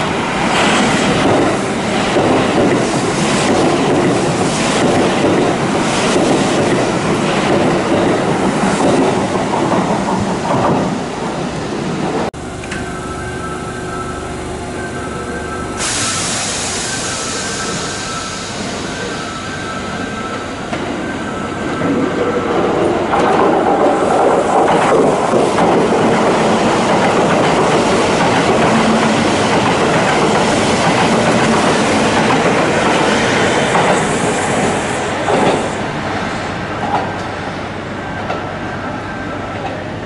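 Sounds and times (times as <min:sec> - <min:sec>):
train wheel squeal: 0:12.8 - 0:23.0
train wheels clacking over rail joints: 0:22.6 - 0:35.7.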